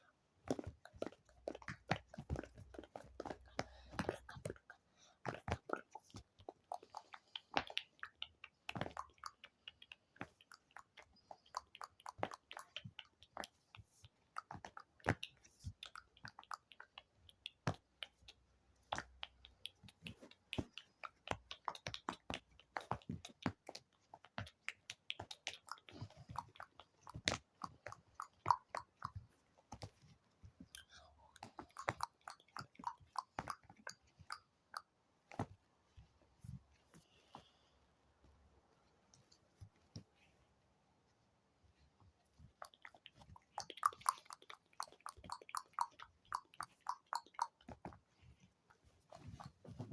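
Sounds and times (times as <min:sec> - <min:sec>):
wet mouth clicks and smacks: 0:00.5 - 0:30.0, 0:30.6 - 0:35.5, 0:42.5 - 0:48.0.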